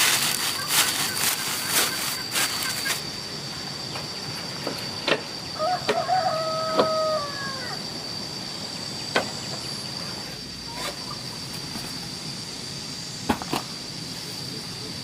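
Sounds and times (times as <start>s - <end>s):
steady high whine: 0.0s - 15.0s
rooster crowing: 5.4s - 7.9s.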